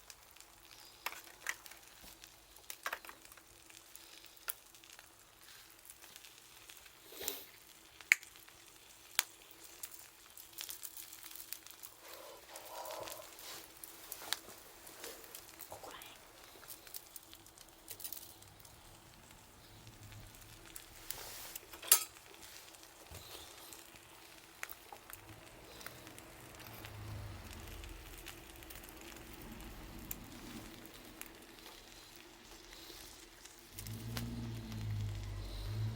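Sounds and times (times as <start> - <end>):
wood fire crackling: 0.0 - 35.9
low rumble: 18.3 - 21.2, 25.2 - 31.9, 33.7 - 35.9.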